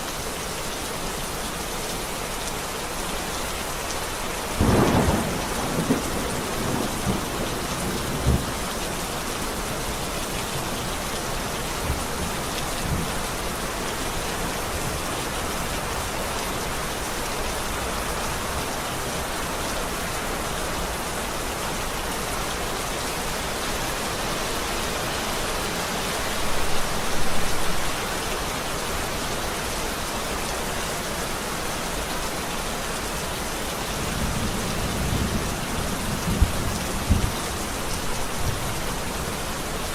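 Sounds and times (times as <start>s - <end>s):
steady rain: 0.0s - 39.9s
rolling thunder: 4.6s - 8.6s, 34.2s - 37.4s.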